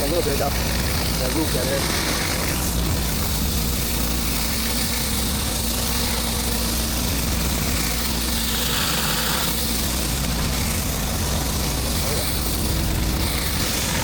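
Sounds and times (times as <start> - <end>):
high hiss: 0.0 - 14.0
pressure washer engine running: 0.0 - 14.0.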